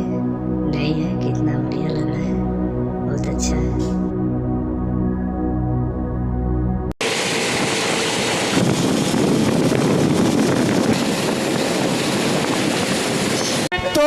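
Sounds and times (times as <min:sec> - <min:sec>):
soft ambient music: 0:00.0 - 0:07.0
wind rushing: 0:07.0 - 0:13.7.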